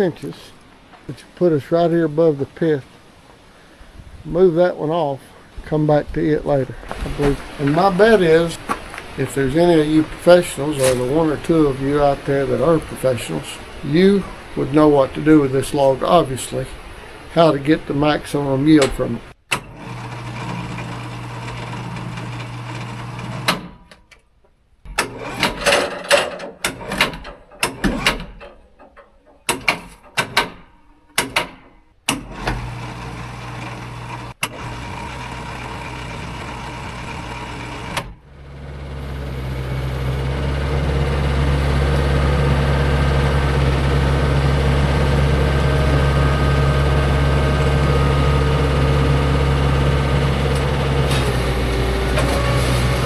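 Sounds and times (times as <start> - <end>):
sawmill engine running: 0.0 - 23.7, 32.1 - 53.0
sharp knocks and clunks: 5.4 - 19.7, 24.9 - 32.8.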